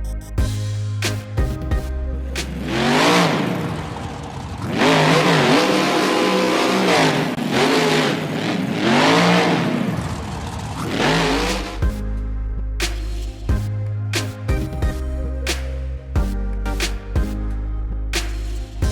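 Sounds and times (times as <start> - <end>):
car engine revving: 2.4 - 11.9.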